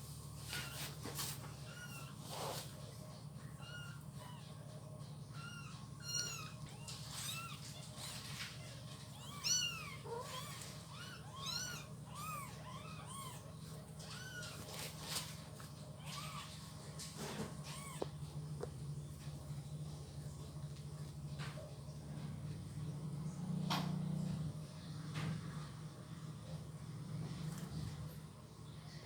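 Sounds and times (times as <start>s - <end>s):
steady low hum: 0.0s - 29.0s
kittens mewing: 0.6s - 2.7s, 3.4s - 15.3s, 16.0s - 18.3s.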